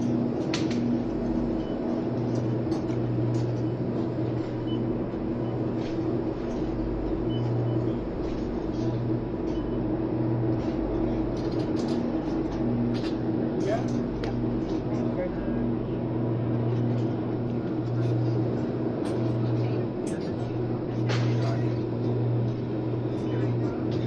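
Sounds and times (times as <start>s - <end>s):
low hum of store machinery: 0.0s - 24.0s
faint clicks and rattles: 10.5s - 15.3s.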